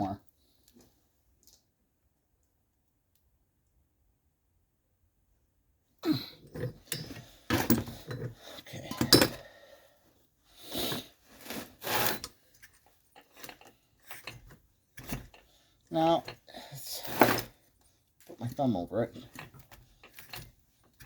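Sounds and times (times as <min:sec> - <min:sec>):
metal tools clinking: 0:06.5 - 0:09.4.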